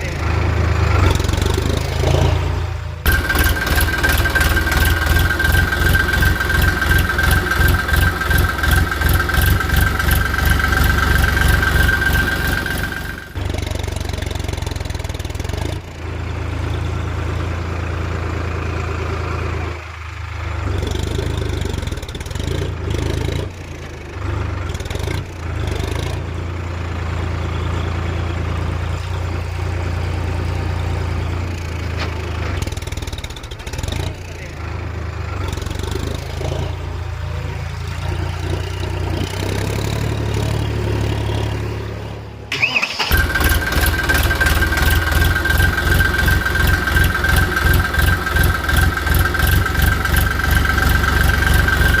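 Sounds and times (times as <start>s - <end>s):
engine chugging with high whine: 0.0s - 52.0s.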